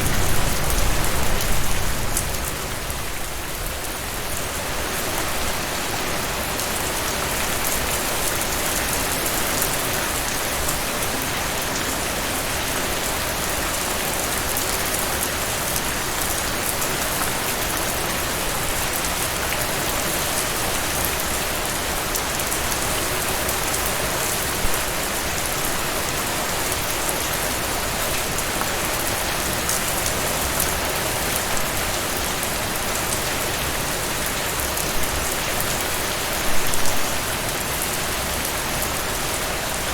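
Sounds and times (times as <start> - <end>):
sharp raindrop hits: 0.0 - 4.5
heavy rain falling: 0.0 - 39.9.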